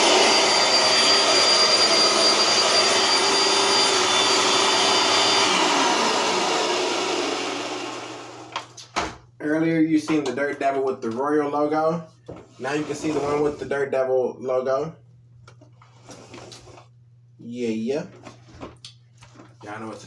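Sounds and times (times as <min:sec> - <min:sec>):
vacuum cleaner whining: 0:00.0 - 0:08.8.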